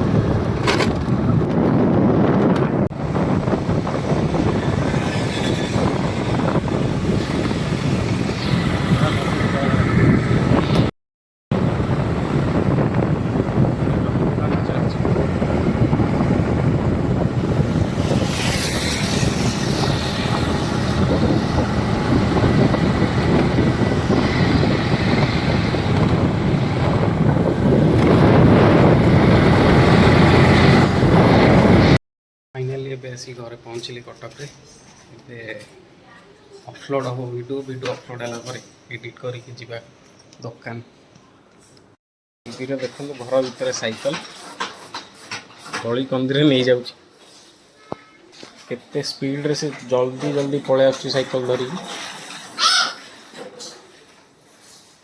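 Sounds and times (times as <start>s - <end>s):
wind buffeting microphone: 0.0s - 10.9s, 11.5s - 32.0s
vehicle running noise: 11.6s - 32.0s.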